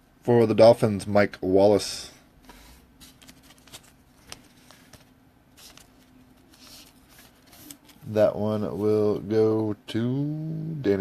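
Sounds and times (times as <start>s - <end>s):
trading cards rustling and clicking: 2.5s - 8.2s.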